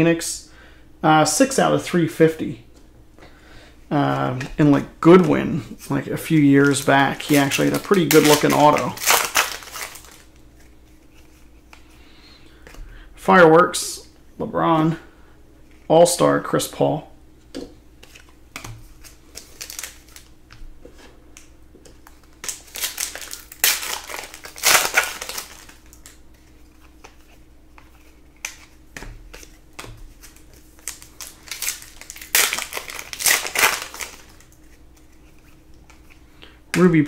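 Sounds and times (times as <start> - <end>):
cards shuffling: 4.1 - 12.8, 17.5 - 36.9
foil wrappers crackling: 5.0 - 11.5, 18.0 - 20.3, 22.0 - 36.2.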